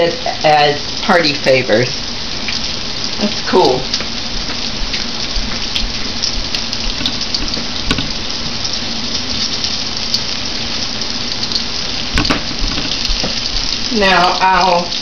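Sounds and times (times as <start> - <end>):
fish frying in oil: 0.0 - 15.0
crackles and pops: 3.6 - 15.0.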